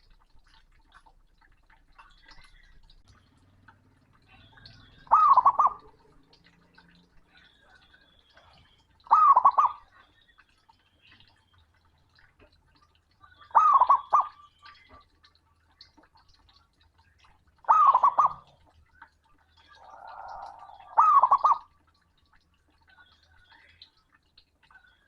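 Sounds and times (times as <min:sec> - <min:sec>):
dove cooing: 0:04.8 - 0:06.2, 0:09.1 - 0:09.8, 0:13.5 - 0:14.3, 0:17.7 - 0:18.5, 0:19.6 - 0:21.7.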